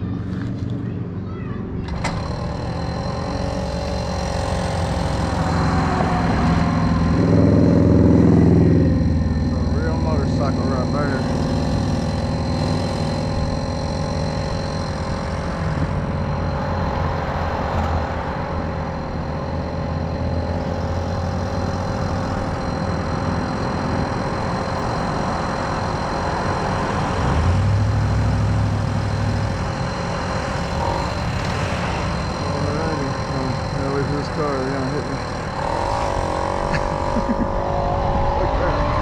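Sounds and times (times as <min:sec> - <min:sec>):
moped two-stroke engine running: 0:00.0 - 0:37.7.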